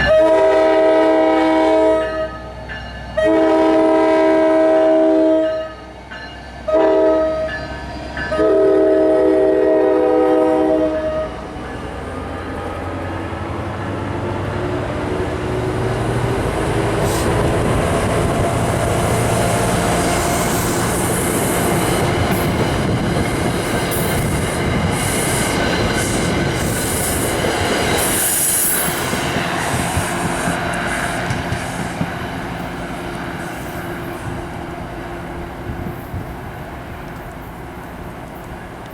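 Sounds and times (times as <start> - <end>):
train air horn blasts: 0.0 - 2.5, 3.2 - 5.8, 6.7 - 7.6, 8.3 - 11.4
train rumble and wheel clatter: 0.0 - 38.9.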